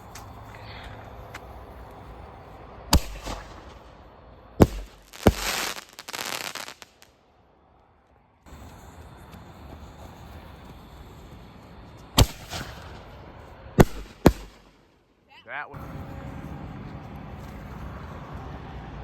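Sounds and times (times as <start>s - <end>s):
fireworks crackling hiss: 0.0s - 7.2s, 8.5s - 15.0s
fireworks bangs: 2.9s - 7.1s, 12.1s - 14.9s.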